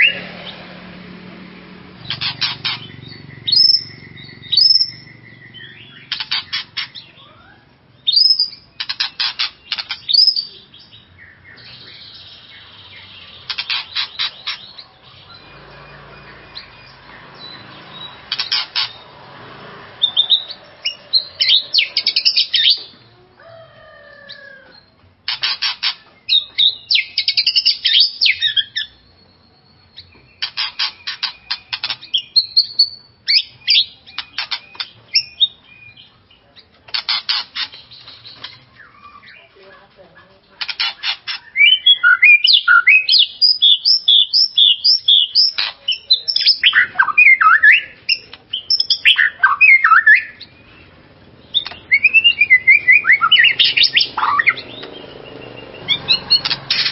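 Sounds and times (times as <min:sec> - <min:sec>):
bird singing rattling notes: 0:01.4 - 0:23.0, 0:24.8 - 0:39.5, 0:40.6 - 0:56.9
bird whistled phrases: 0:41.3 - 0:50.7, 0:51.5 - 0:54.8.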